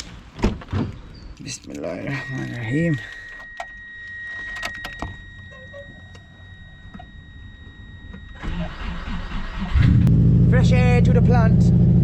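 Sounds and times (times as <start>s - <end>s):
faint high-pitched tone: 1.8s - 8.9s.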